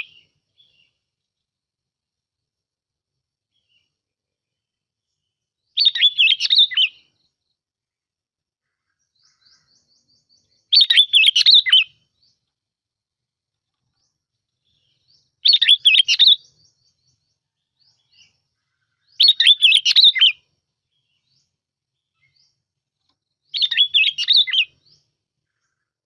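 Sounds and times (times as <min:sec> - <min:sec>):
bulbul singing warbled phrases: 0:05.7 - 0:07.2, 0:09.2 - 0:12.4, 0:14.6 - 0:22.6, 0:23.5 - 0:25.8.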